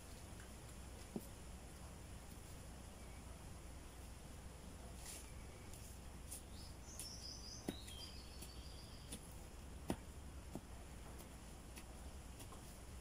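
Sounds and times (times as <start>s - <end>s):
small bird twittering: 6.4s - 9.3s.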